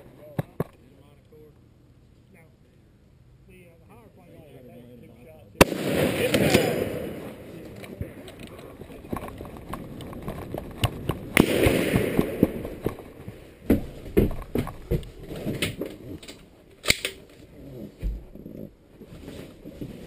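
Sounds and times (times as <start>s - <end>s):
rifle shot with echo: 5.6s - 8.2s, 11.3s - 13.1s.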